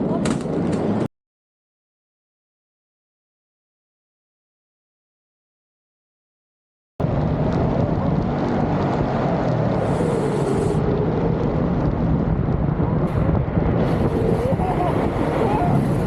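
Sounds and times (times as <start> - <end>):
wind buffeting microphone: 7.0 - 16.0.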